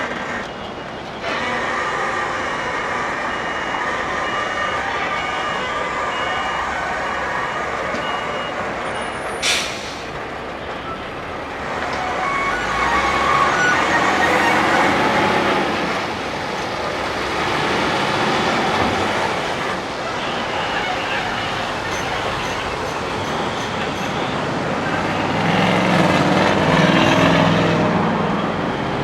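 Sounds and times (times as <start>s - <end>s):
reversing beeper: 2.0s - 25.8s
lorry diesel engine running: 6.0s - 29.0s
air brake hiss: 9.4s - 10.2s.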